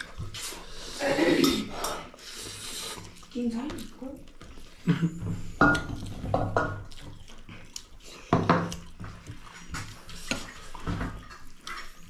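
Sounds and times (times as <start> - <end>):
dishes and cutlery clinking: 4.8 - 7.2.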